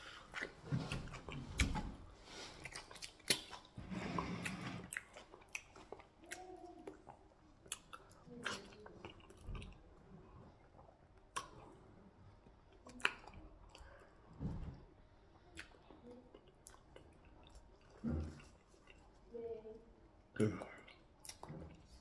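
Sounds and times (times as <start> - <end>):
soft wet chewing: 0.0 - 22.0
lip smacks and clicks: 2.6 - 3.7.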